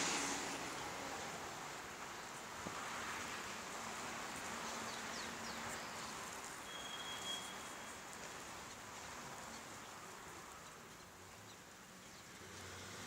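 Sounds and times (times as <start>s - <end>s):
faint bird chirps: 6.6s - 7.9s
thin whistled note: 6.6s - 7.9s.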